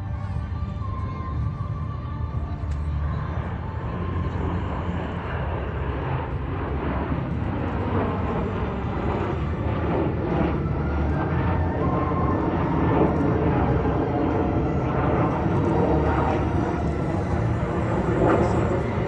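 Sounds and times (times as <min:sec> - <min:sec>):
jet aircraft roaring past: 0:00.0 - 0:19.0.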